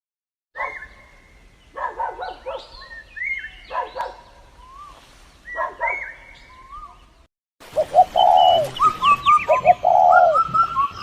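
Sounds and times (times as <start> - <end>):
birds calling: 0.6 - 11.0
high gliding whistled bird notes: 8.2 - 11.0.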